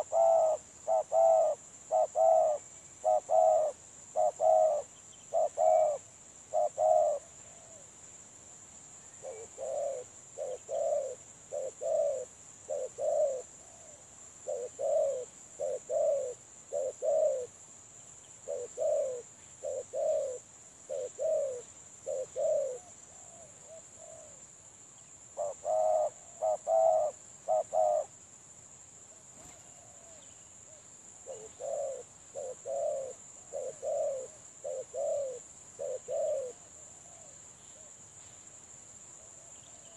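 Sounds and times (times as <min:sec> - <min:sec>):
doves cooing: 0:00.0 - 0:07.9, 0:09.1 - 0:17.6, 0:18.4 - 0:24.4, 0:25.4 - 0:28.1, 0:29.4 - 0:30.3, 0:31.2 - 0:37.4.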